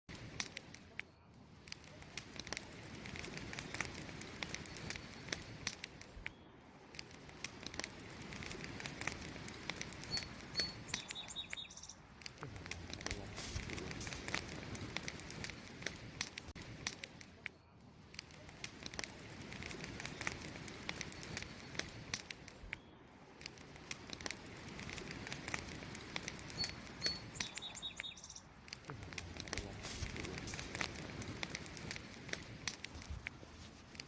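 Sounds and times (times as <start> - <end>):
campfire crackling: 0.1 - 34.0
bird chirping: 10.0 - 12.1, 26.5 - 28.6.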